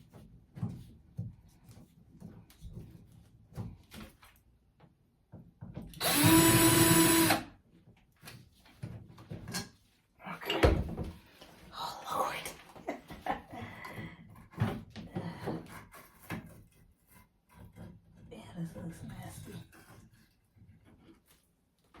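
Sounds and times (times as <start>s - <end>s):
power drill running: 6.0s - 7.5s.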